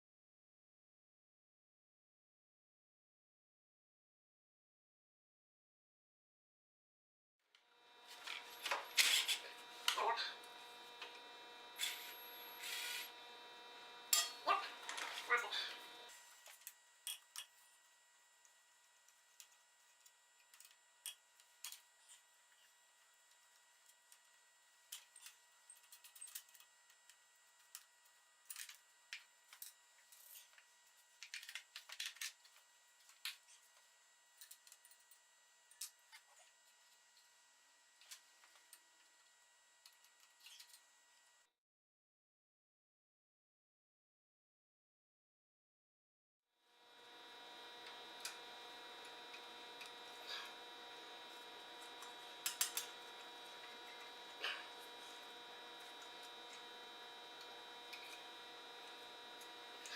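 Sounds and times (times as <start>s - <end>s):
faint hum: 7.8s - 16.5s, 46.8s - 59.9s
scraping and rubbing: 8.1s - 13.1s.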